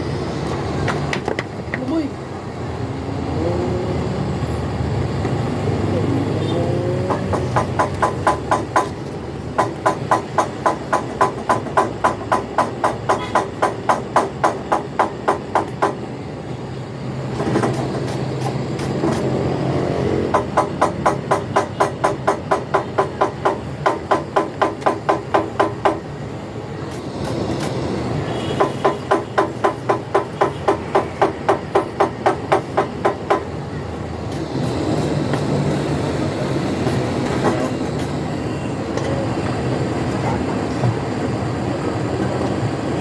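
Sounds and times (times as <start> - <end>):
rapid hammer blows on metal: 7.0 - 16.1, 20.2 - 26.1, 26.9 - 33.6.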